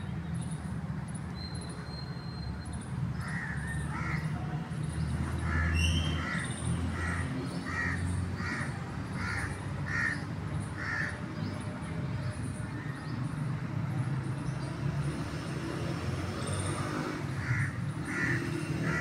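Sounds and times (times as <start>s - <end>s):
bird harsh calls: 5.4s - 11.2s, 17.3s - 19.0s.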